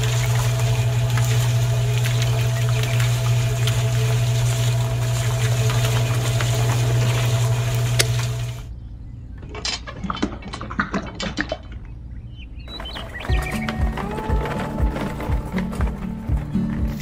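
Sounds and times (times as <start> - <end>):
small electric motor humming: 0.0 - 8.7
mortar scraping into metal wheelbarrow: 12.7 - 17.0.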